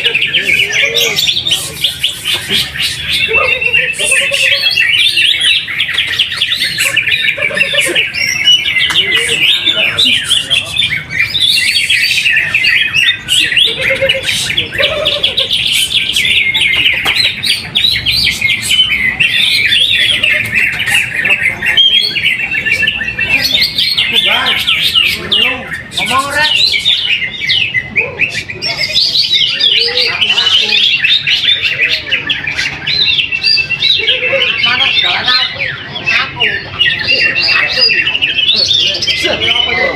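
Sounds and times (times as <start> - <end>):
bird singing chattering warbles: 0.0 - 39.9.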